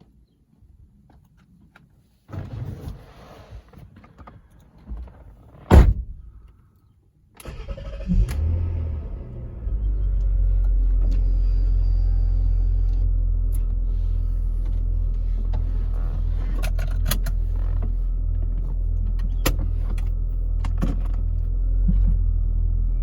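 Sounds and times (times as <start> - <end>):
loud sharp thump: 5.7 - 6.3
car engine starting and idling: 7.4 - 23.0.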